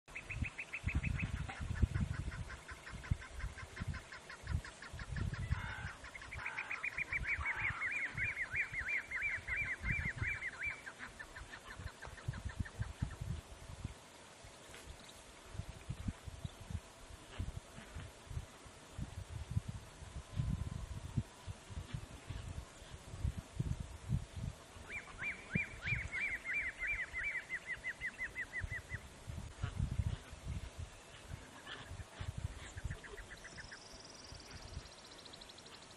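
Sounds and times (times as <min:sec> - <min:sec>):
bird calling in repeated notes: 0:00.2 - 0:13.0, 0:24.9 - 0:29.0
low rumbling gusts: 0:18.4 - 0:24.7.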